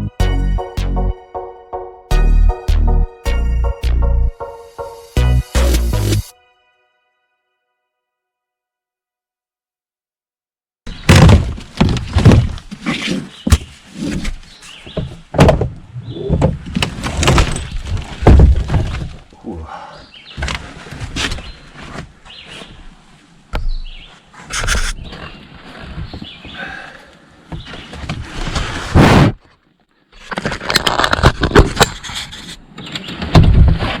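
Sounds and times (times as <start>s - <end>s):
boat floor cracking and thudding: 11.1s - 19.3s.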